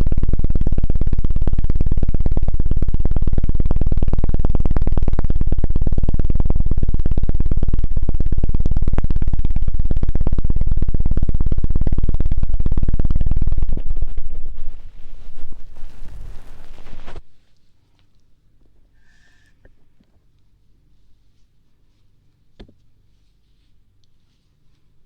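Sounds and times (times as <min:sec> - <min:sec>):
rapid deep thuds on microphone: 0:00.0 - 0:17.4.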